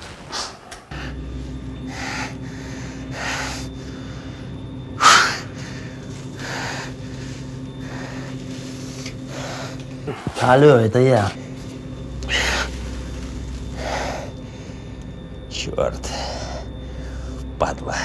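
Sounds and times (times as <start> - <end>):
steady low hum: 0.0 - 18.0
man breathing hard: 1.8 - 10.4, 12.2 - 15.2.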